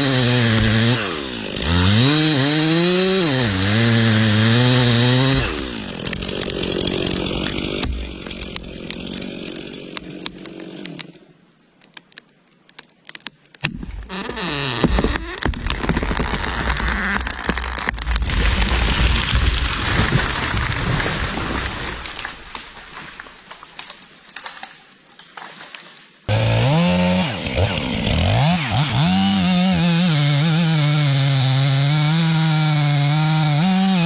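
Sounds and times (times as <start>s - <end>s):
chainsaw cutting wood: 0.0s - 11.3s, 13.6s - 24.0s, 26.3s - 34.0s
wood clicks and cracks: 4.4s - 26.0s.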